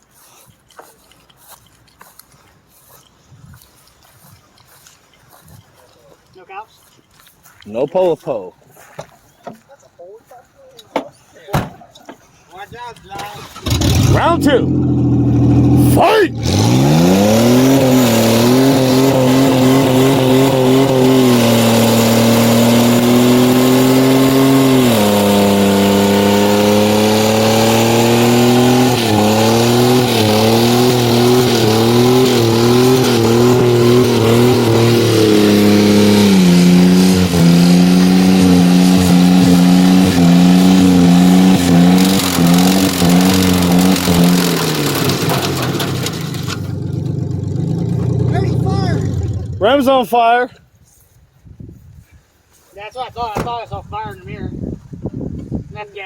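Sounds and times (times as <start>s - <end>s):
truck engine at high revs: 13.3s - 49.9s.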